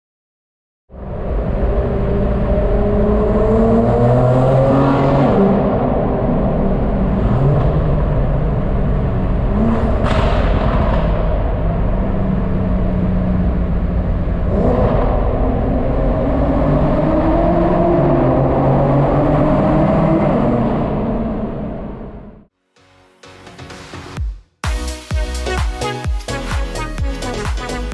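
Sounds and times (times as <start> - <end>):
car engine revving: 1.0 - 22.5.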